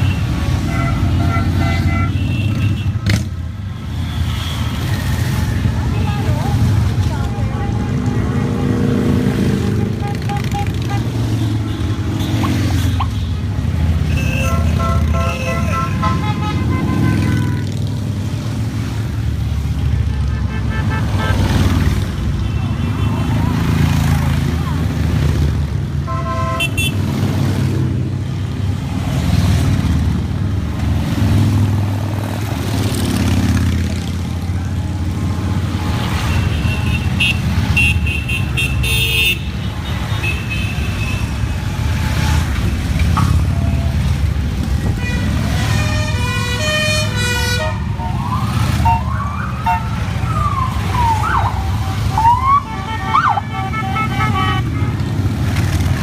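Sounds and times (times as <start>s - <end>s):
horns tooting: 0.0s - 18.2s, 19.8s - 24.7s, 26.0s - 27.3s, 34.8s - 56.0s
motorcycle engines rumbling: 0.0s - 56.0s
siren-like wail: 47.8s - 54.6s.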